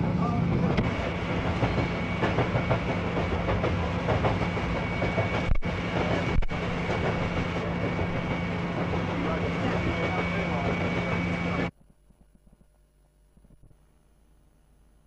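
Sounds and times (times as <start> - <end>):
train rumble and hum: 0.0 - 11.7
train wheels clacking on rails: 0.6 - 11.7.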